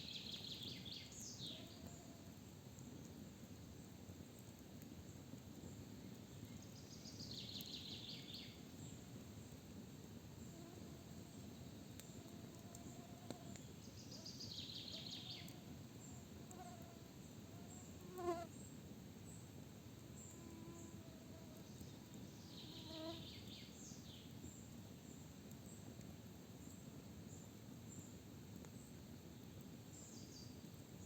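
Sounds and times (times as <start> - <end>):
fly buzzing past: 18.0 - 18.5.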